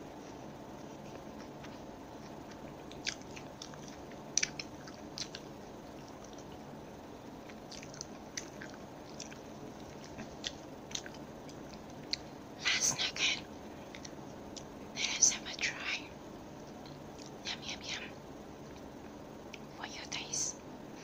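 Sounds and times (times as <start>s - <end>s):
steady low hiss: 0.0s - 21.0s
chewing food: 0.1s - 12.4s, 13.4s - 14.8s, 16.6s - 17.4s
wet mouth clicks: 2.5s - 5.5s.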